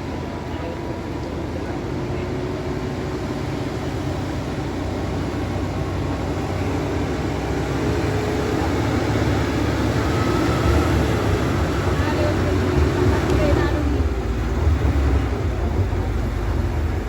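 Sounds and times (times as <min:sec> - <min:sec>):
heavy vehicle engine under load: 0:00.0 - 0:17.0.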